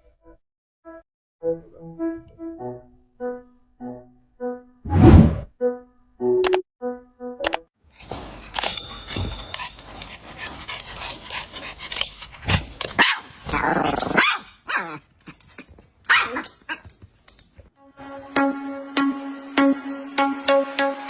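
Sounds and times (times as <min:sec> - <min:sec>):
dog barking: 0:13.0 - 0:13.4, 0:14.1 - 0:15.0, 0:16.1 - 0:16.8.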